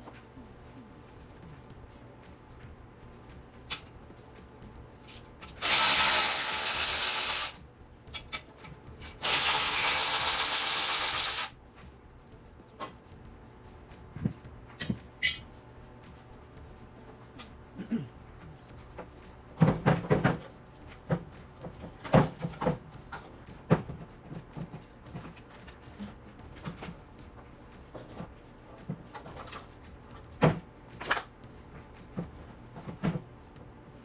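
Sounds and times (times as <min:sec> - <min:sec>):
power tool driving fasteners: 0:05.4 - 0:07.6, 0:09.0 - 0:11.5.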